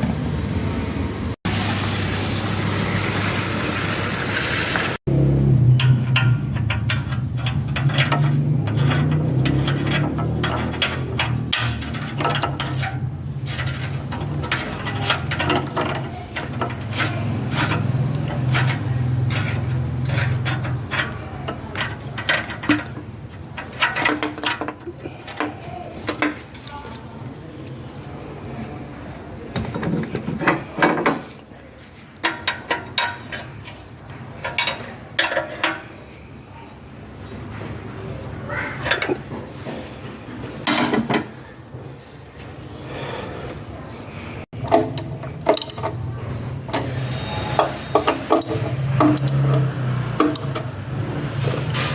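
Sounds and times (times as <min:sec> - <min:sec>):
metal tools clinking: 0:05.8 - 0:27.1.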